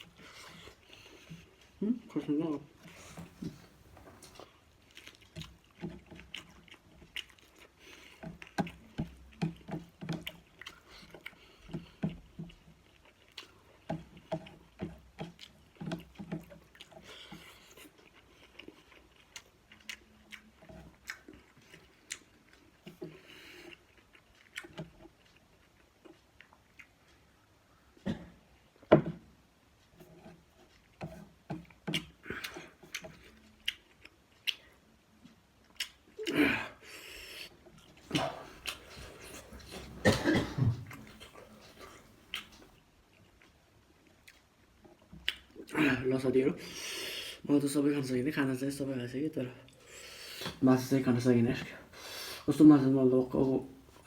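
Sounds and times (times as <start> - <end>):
chewing and biting: 2.8 - 36.4, 37.2 - 45.7
wet mouth clicks: 31.9 - 36.4, 38.1 - 42.7.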